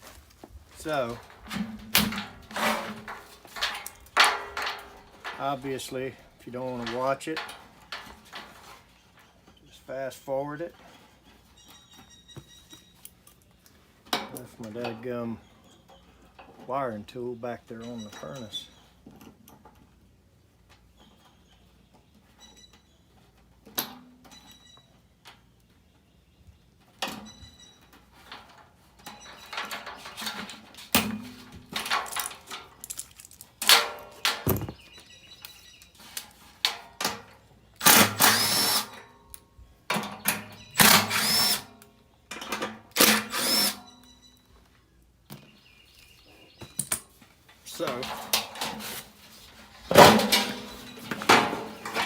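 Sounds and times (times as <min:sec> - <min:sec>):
tools and metal parts clattering: 0:00.7 - 0:09.5, 0:27.0 - 0:44.4, 0:46.2 - 0:52.0
cordless drill whining: 0:37.8 - 0:39.0, 0:40.8 - 0:41.7, 0:43.0 - 0:43.8.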